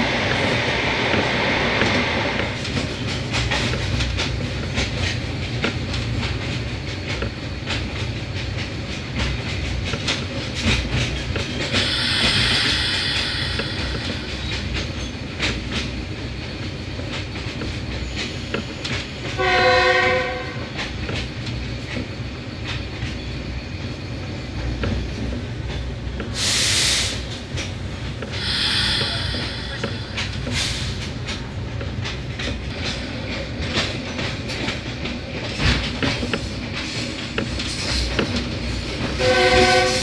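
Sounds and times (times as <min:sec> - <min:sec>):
train rumbling: 0:00.0 - 0:40.0
hiss bursts: 0:11.7 - 0:14.8, 0:26.4 - 0:27.3, 0:28.3 - 0:31.0
train horn: 0:19.4 - 0:20.7, 0:39.2 - 0:40.0
wheels clacking over rail joints: 0:29.0 - 0:39.9.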